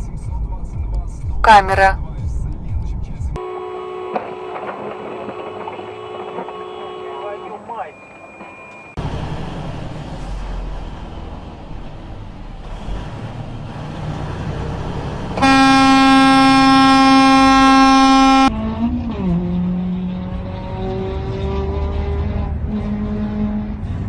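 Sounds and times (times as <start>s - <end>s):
vehicle horn blast: 3.4s - 7.7s, 15.4s - 18.5s
road traffic noise: 3.4s - 24.0s
vehicle engine accelerating: 9.0s - 24.0s.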